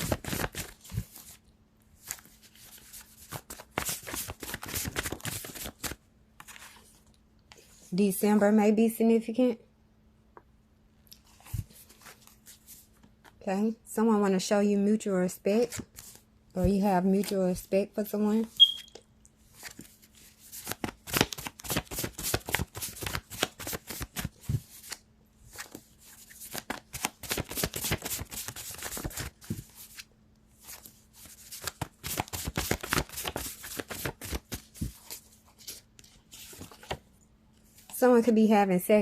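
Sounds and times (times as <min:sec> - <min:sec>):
cards being shuffled: 0:00.0 - 0:01.4, 0:02.0 - 0:07.0, 0:19.5 - 0:37.0.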